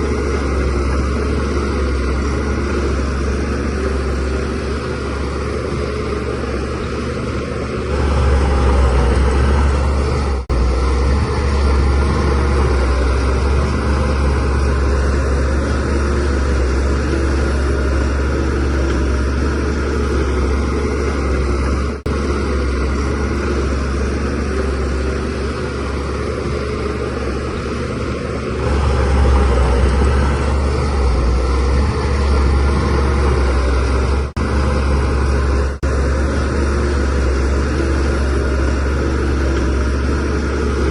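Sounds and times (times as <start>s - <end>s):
bulldozer diesel engine under load: 0.0s - 40.9s.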